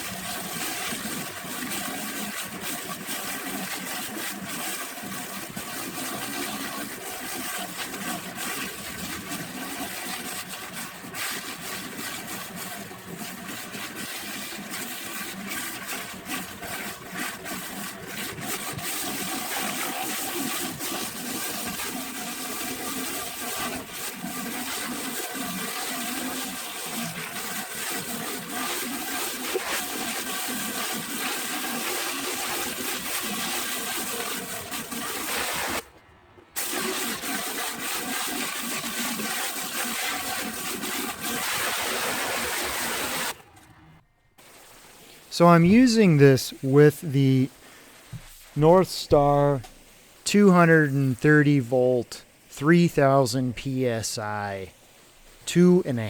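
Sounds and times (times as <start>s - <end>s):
pressure washer pump hum: 44.4s - 56.0s.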